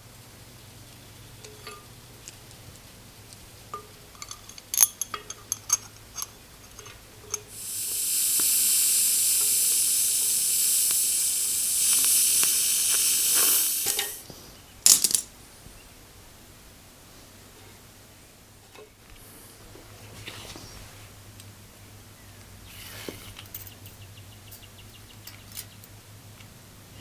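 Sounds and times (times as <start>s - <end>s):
small metal parts clinking: 4.1s - 14.2s, 14.9s - 15.3s
pressurized spray hissing: 7.5s - 14.2s.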